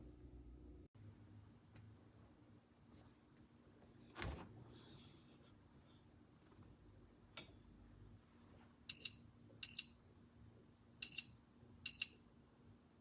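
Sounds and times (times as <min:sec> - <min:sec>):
short high-pitched fridge panel beeps: 0:08.9 - 0:10.0.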